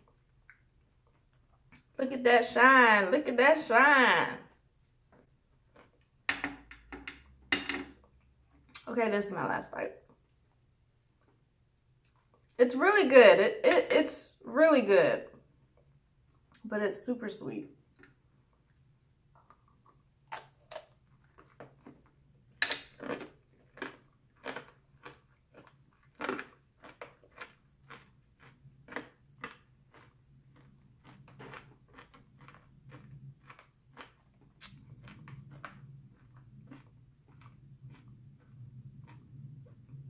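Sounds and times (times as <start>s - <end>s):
sugar shell crunching: 19.3s - 39.2s.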